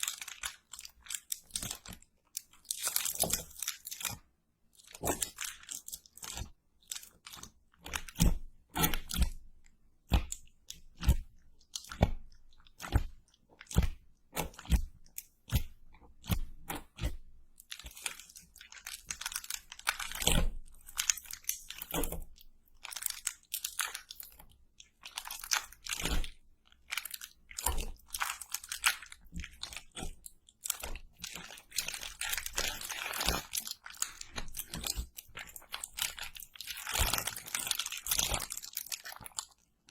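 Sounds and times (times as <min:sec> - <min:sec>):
crunching crispy food: 0:00.0 - 0:04.2, 0:17.7 - 0:39.9.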